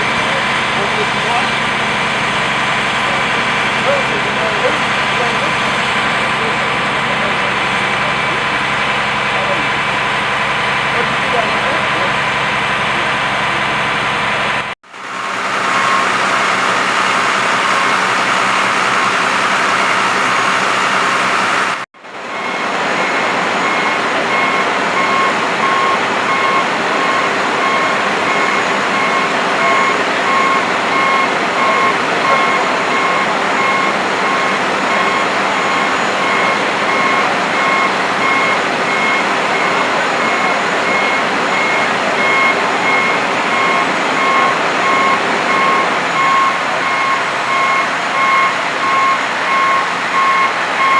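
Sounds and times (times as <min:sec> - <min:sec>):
heavy truck engine running: 0:00.0 - 0:50.9
reversing alarm beeping: 0:15.0 - 0:50.9.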